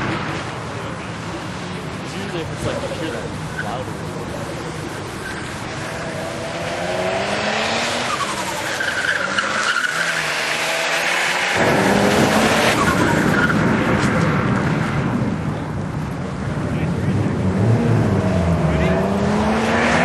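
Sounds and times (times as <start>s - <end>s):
car engine accelerating hard: 4.2s - 15.5s, 16.5s - 20.0s.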